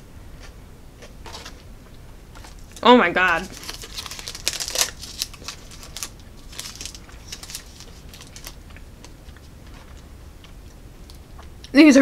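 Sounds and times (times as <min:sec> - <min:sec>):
crunchy chewing: 0:03.5 - 0:11.7.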